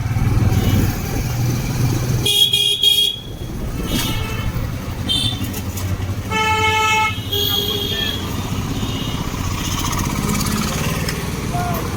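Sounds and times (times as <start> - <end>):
motorcycle engine and wind rumble: 0.0 - 11.9
vehicle horn honking: 2.2 - 5.6, 6.2 - 9.3.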